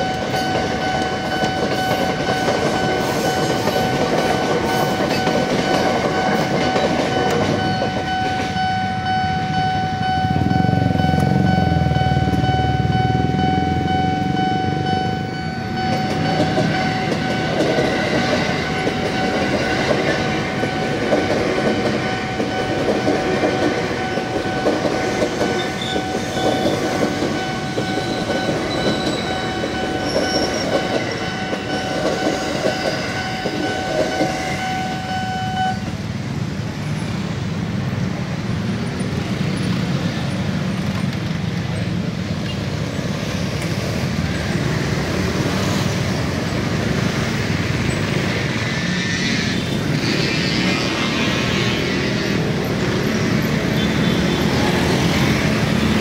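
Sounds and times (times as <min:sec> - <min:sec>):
train wheels clattering over rails: 0:00.0 - 0:08.7, 0:15.8 - 0:34.6
high warning tone: 0:00.0 - 0:36.1
train low rumble: 0:00.0 - 0:56.0.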